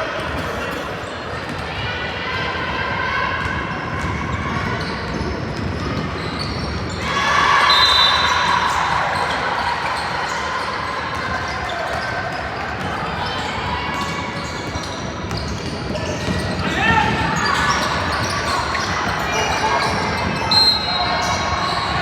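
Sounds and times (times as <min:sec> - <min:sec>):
sneakers squeaking: 0:00.0 - 0:01.8, 0:03.4 - 0:22.0
ball bouncing on court: 0:13.9 - 0:21.0.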